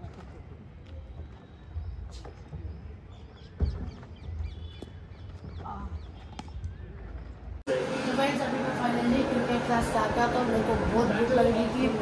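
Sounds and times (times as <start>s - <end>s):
birds chirping: 0.3s - 7.6s.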